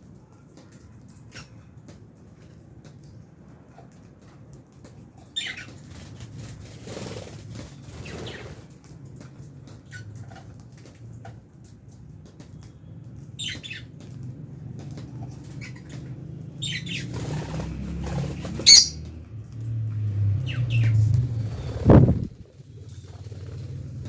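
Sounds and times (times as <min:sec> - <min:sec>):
wing flapping: 0:05.6 - 0:08.9, 0:16.8 - 0:19.0, 0:21.2 - 0:24.0
small clicks and taps: 0:08.8 - 0:13.3
short high bird chirps: 0:18.7 - 0:19.0.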